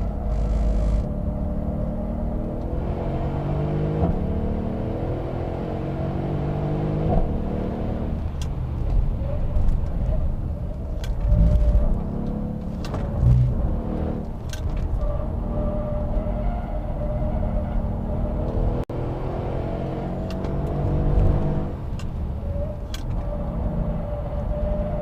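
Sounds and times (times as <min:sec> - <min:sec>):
car engine revving hard: 0:00.0 - 0:08.1.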